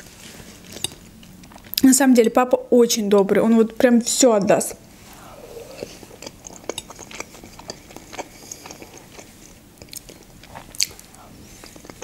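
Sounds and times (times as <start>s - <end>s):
chewing and wet mouth clicks: 5.7s - 12.0s.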